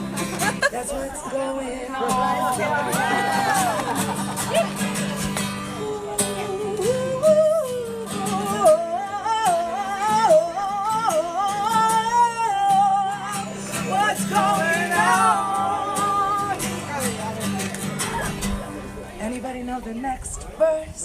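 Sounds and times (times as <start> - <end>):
acoustic guitar strumming: 0.0 - 19.6
woman singing: 0.6 - 3.8, 5.7 - 16.8, 19.2 - 21.0.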